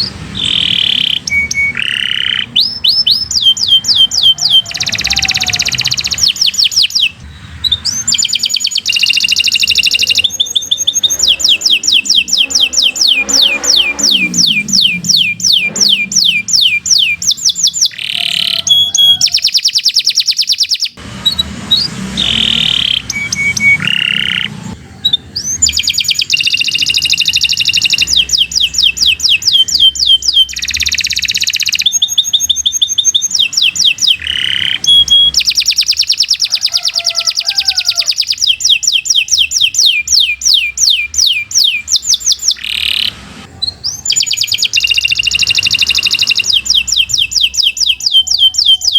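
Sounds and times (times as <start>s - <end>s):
canary singing: 0.0s - 48.9s.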